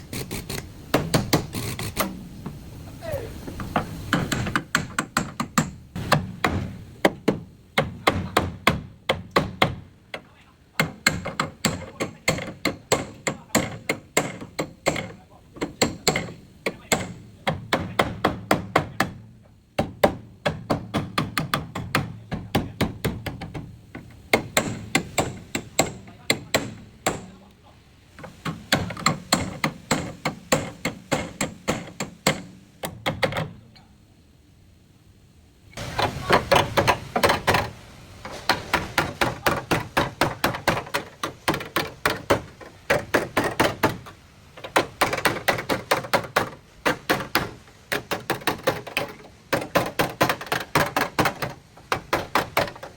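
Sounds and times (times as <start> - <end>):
hammer striking car body metal: 4.1 - 9.9, 10.8 - 19.2, 19.8 - 23.7, 24.3 - 27.3, 28.5 - 33.5, 38.4 - 52.9.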